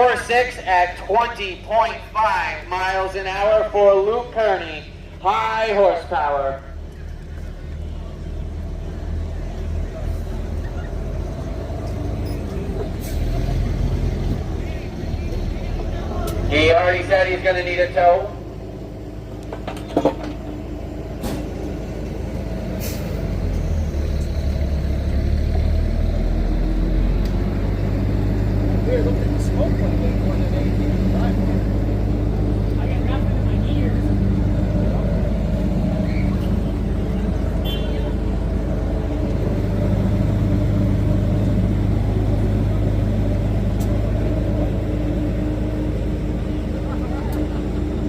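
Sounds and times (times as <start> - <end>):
heavy truck engine rumbling: 0.0 - 48.0
air brake hisses: 22.8 - 23.2.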